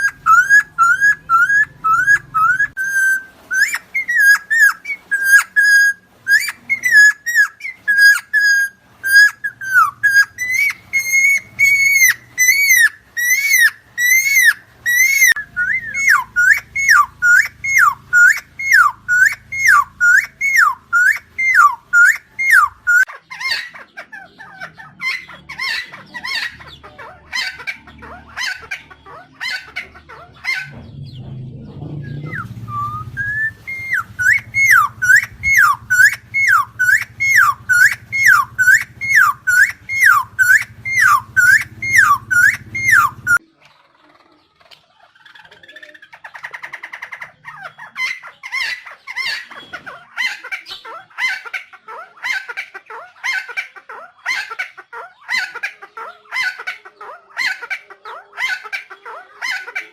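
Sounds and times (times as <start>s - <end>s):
bird whistling swooping notes: 0.0s - 23.1s, 30.5s - 43.4s.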